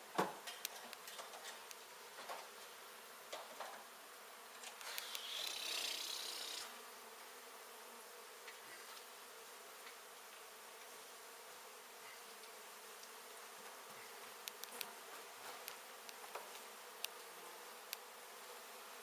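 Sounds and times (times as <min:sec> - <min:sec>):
honey bees buzzing: 0:00.0 - 0:19.0
sharp clicks: 0:04.6 - 0:05.6, 0:14.5 - 0:14.9.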